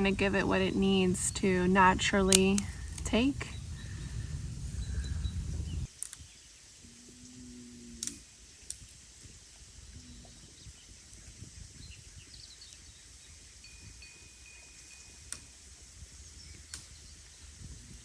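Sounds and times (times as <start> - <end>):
faint low drone: 0.0 - 5.9
low rumble: 0.0 - 5.9.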